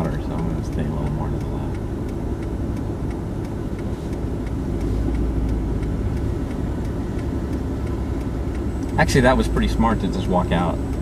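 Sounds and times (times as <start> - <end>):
car engine and road rumble: 0.0 - 11.0
faint ticks: 0.1 - 11.0.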